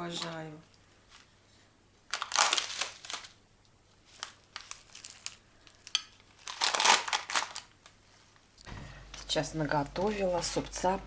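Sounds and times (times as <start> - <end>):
plastic packaging crinkling: 2.1 - 3.4, 4.0 - 8.4.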